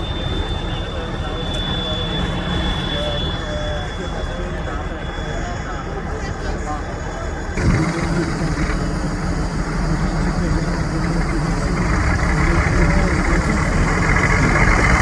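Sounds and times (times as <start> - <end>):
truck diesel engine running: 6.5 - 15.0.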